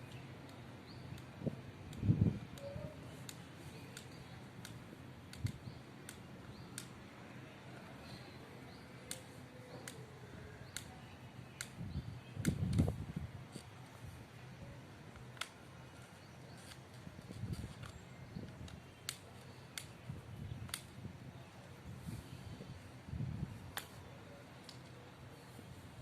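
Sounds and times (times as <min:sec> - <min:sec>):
sharp clicks: 0:01.9 - 0:07.0, 0:08.0 - 0:13.7, 0:15.1 - 0:21.0.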